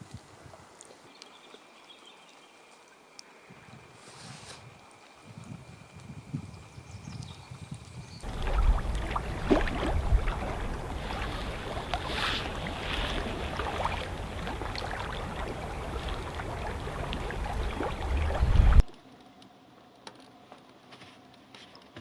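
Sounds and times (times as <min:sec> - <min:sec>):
wind buffeting microphone: 0:04.6 - 0:18.9
canoe knocks: 0:08.2 - 0:18.7
water splashing: 0:08.2 - 0:19.0.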